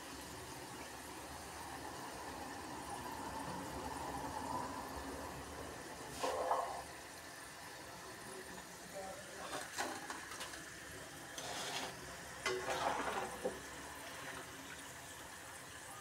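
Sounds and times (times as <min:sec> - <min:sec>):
fries sizzling in hot oil: 0:00.0 - 0:16.0
metal skimmer scraping a pan: 0:06.1 - 0:06.9, 0:09.2 - 0:10.6, 0:11.2 - 0:14.8.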